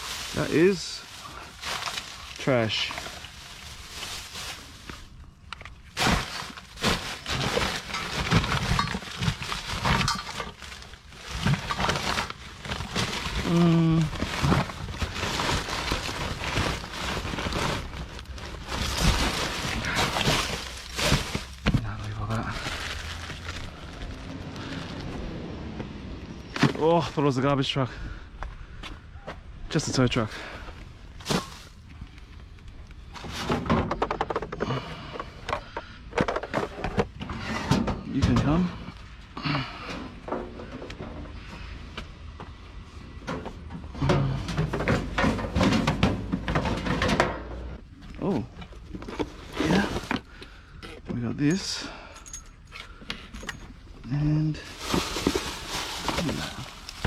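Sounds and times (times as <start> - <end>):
rubbish rustling and clattering: 0.0 - 25.2, 31.2 - 41.7, 42.4 - 57.0
junk being handled: 0.1 - 13.5, 14.1 - 23.9, 43.2 - 47.8.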